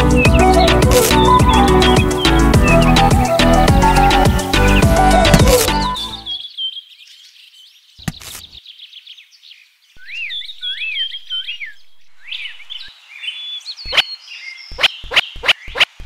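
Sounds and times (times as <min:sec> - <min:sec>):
bird-like chirping and whistles: 0:00.0 - 0:06.8, 0:10.0 - 0:16.0.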